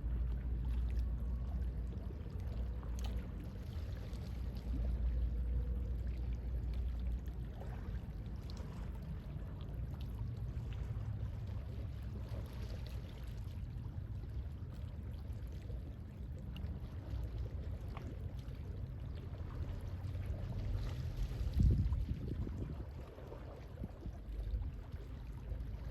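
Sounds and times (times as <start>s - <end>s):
small water ticks: 0.0s - 5.4s
calm sea waves washing: 0.0s - 25.9s.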